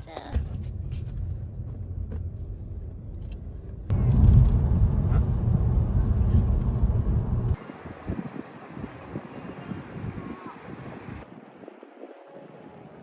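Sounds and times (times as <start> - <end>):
low steady rumble: 0.1 - 7.6.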